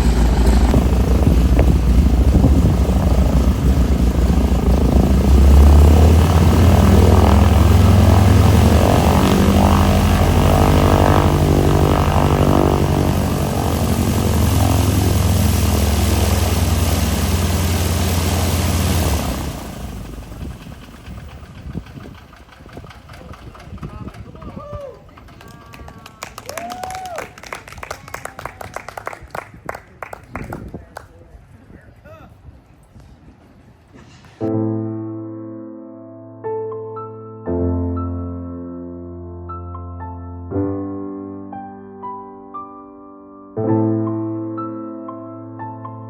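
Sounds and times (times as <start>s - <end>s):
propeller airplane engine drone: 0.0s - 27.7s.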